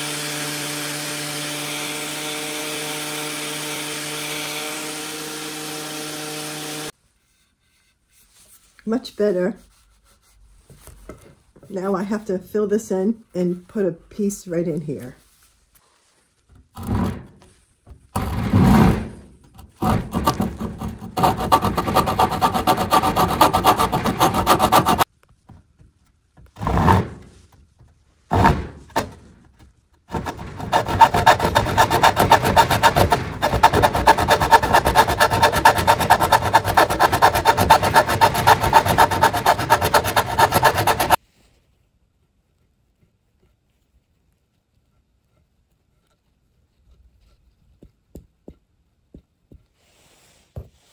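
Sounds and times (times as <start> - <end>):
sanding wood: 0.0 - 7.4, 18.2 - 25.1, 30.1 - 41.2.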